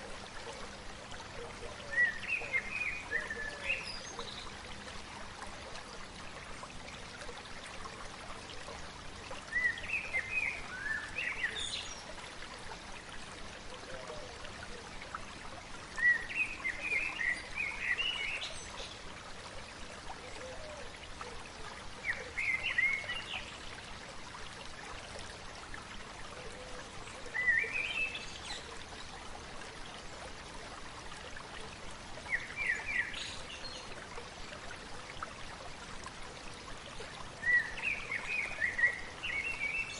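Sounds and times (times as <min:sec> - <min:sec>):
stream babbling: 0:00.0 - 0:39.9
songbird singing: 0:00.4 - 0:04.6, 0:09.5 - 0:12.2, 0:15.9 - 0:19.1, 0:22.0 - 0:23.7, 0:26.4 - 0:29.1, 0:32.2 - 0:34.0, 0:37.3 - 0:39.9.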